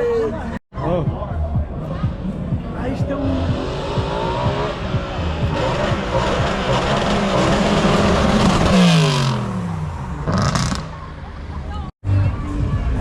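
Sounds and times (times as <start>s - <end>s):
car engine accelerating hard: 2.8s - 11.1s.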